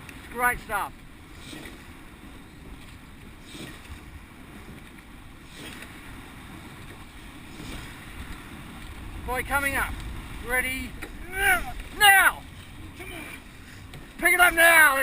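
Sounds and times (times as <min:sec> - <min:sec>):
water rushing past boat: 0:00.0 - 0:15.0
wind buffeting microphone: 0:00.0 - 0:15.0
faint swishes: 0:07.0 - 0:13.9.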